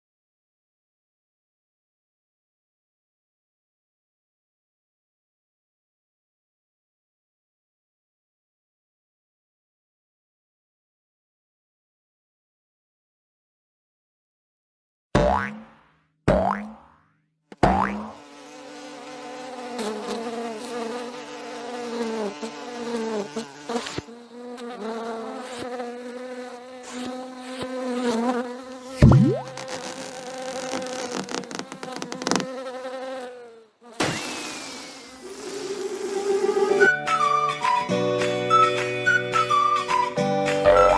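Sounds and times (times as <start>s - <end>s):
insect-like buzzing drone: 34.0s - 36.9s.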